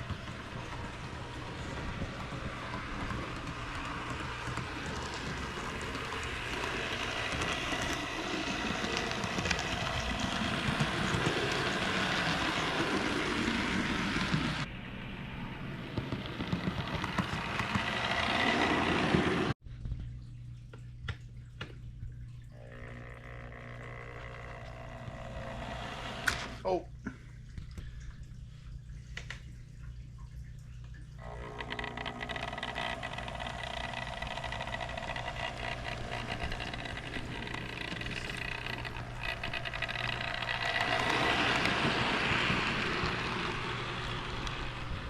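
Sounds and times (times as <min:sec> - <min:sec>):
model train whirring on track: 0:00.0 - 0:19.6, 0:22.6 - 0:26.6, 0:31.2 - 0:45.0
low steady hum: 0:19.6 - 0:45.0.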